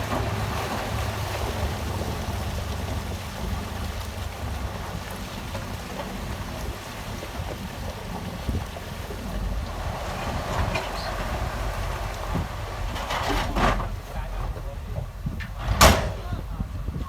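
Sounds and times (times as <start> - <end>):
diesel engine rumbling: 0.0 - 17.0
light knocks and clatter: 0.0 - 17.0.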